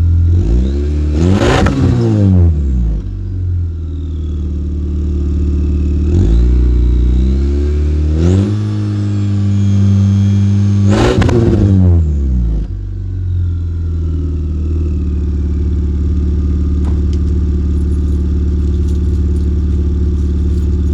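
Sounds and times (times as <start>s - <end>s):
car engine revving: 0.3s - 2.7s, 17.2s - 20.9s.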